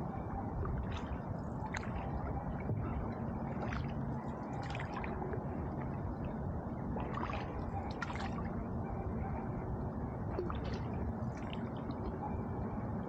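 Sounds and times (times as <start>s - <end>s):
paddle splashing and dripping: 0.7s - 2.9s, 3.5s - 5.9s, 7.0s - 8.5s
rush of moving water: 7.0s - 8.5s.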